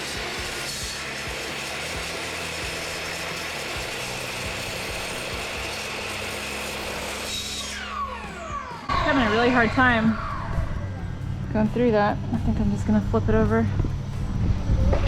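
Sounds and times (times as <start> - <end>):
miter saw cutting board: 0.0 - 10.8.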